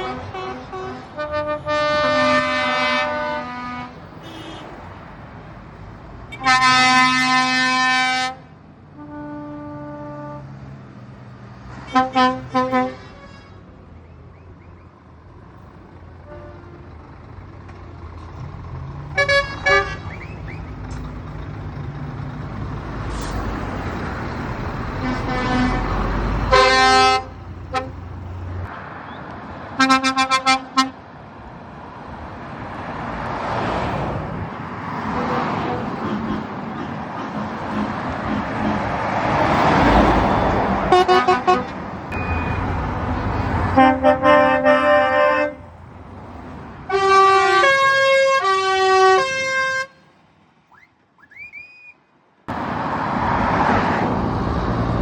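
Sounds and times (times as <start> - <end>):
truck air horns: 0.0 - 4.8, 6.3 - 10.6, 11.8 - 13.7, 16.2 - 17.0, 19.1 - 20.5, 24.9 - 28.1, 29.8 - 31.0, 35.1 - 37.1, 39.7 - 45.8, 46.9 - 50.1
diesel truck engine rumbling: 0.0 - 51.6.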